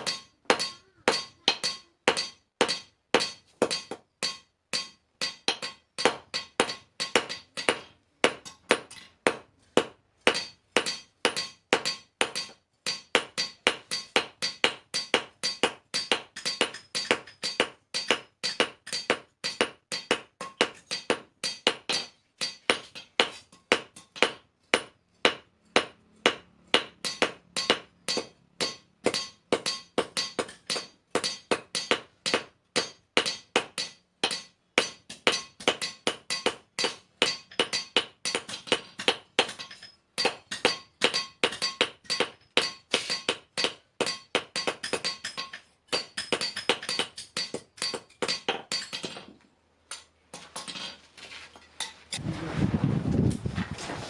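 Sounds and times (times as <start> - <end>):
hammer ringing on anvil: 0.0 - 9.0, 10.3 - 22.8, 25.8 - 49.1
rough full noise: 51.0 - 54.0.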